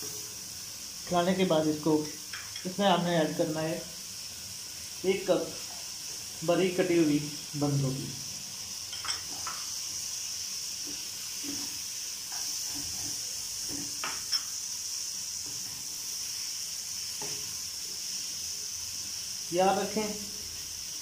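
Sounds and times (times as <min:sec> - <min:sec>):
vegetables sizzling in a wok: 0:00.0 - 0:21.0
spatula scraping and knocking on pan: 0:10.8 - 0:14.5, 0:17.2 - 0:17.5.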